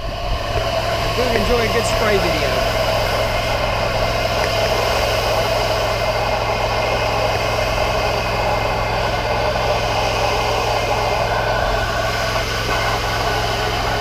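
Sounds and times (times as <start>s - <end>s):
pressure washer engine running: 0.0s - 14.0s
spray hissing: 0.4s - 14.0s.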